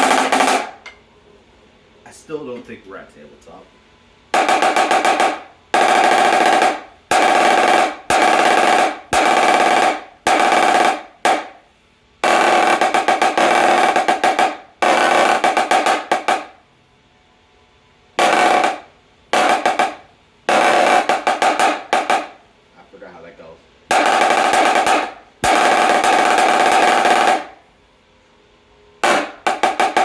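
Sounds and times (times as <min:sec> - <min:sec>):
snare drum rolls: 0:00.0 - 0:01.0, 0:04.3 - 0:11.6, 0:12.2 - 0:16.6, 0:18.2 - 0:22.4, 0:23.9 - 0:27.6, 0:29.0 - 0:30.0.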